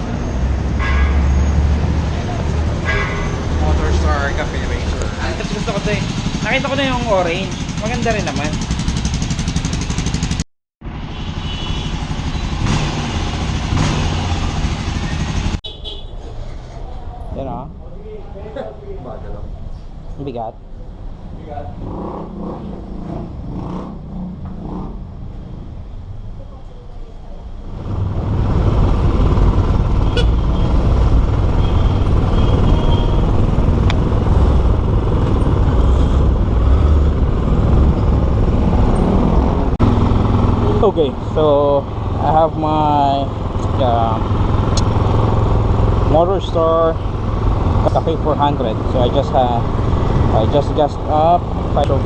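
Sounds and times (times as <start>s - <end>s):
motor vehicle low rumble: 11.9s - 52.0s.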